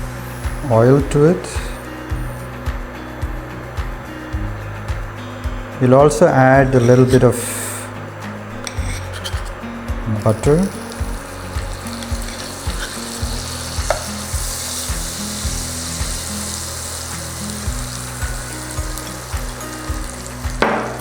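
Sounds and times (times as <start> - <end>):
butter sizzling in hot oil: 0.0 - 2.9, 8.6 - 21.0
quiet background music: 0.0 - 21.0.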